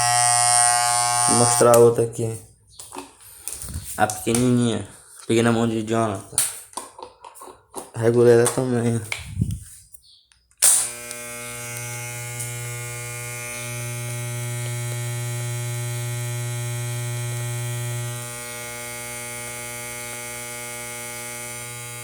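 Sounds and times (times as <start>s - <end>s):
electric hair clipper buzzing: 0.0s - 2.0s, 10.6s - 22.0s.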